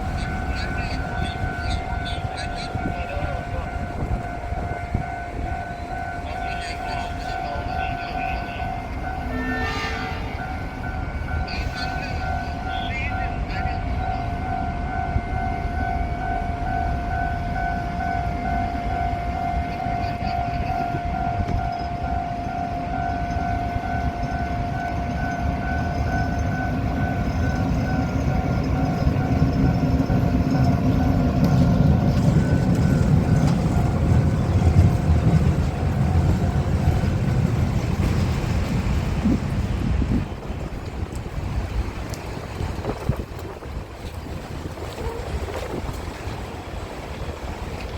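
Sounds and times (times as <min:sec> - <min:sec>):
high warning tone: 0:00.0 - 0:38.5
rail vehicle rumbling: 0:00.0 - 0:47.9
engine low rumble: 0:25.3 - 0:42.2.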